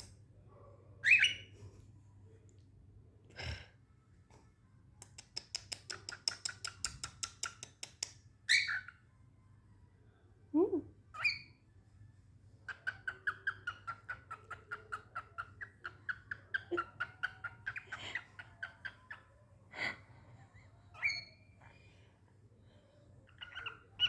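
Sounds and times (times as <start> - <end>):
cockatiel calls: 1.0 - 1.5, 8.5 - 9.0, 11.1 - 11.6, 12.6 - 19.3, 20.9 - 21.4, 23.3 - 24.0
cockatiel chirping: 1.0 - 1.5, 8.5 - 9.0, 11.1 - 11.6, 12.6 - 19.3, 20.9 - 21.4, 23.3 - 24.0.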